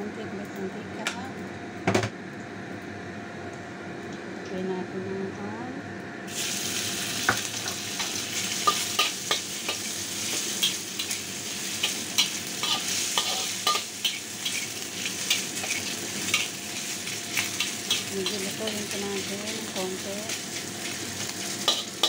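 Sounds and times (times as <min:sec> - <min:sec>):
ham sizzling in hot oil: 0:06.3 - 0:22.0
metal spatula scraping a wok: 0:08.0 - 0:18.4, 0:21.5 - 0:22.0.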